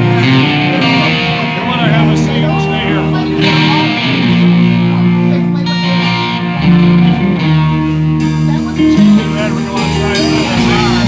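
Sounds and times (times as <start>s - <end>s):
live band with guitar: 0.0s - 11.0s.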